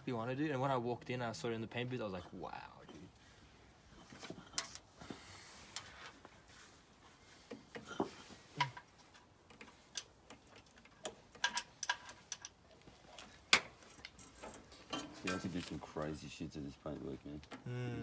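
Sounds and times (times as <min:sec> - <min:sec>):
sharp clicks and light knocks: 0:04.0 - 0:04.9, 0:07.5 - 0:16.2.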